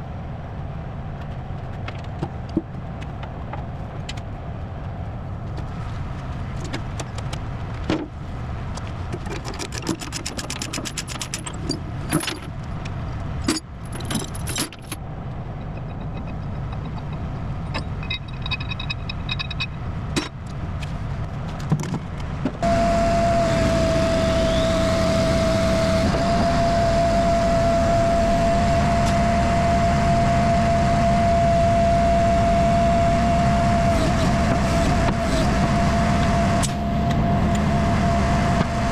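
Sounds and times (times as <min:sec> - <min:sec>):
engine running with whine: 0:10.0 - 0:38.9
metal chains clinking: 0:13.9 - 0:15.0.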